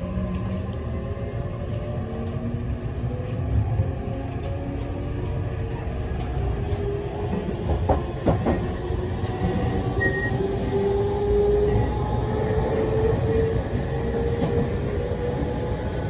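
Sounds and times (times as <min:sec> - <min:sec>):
rail joint clacks: 0:06.2 - 0:10.4.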